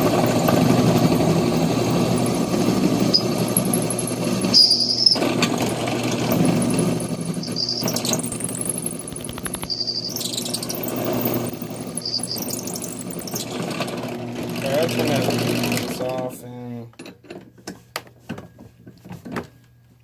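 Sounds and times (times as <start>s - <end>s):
electric drill motor running: 0.0s - 16.0s
drill bit squealing: 2.0s - 14.9s.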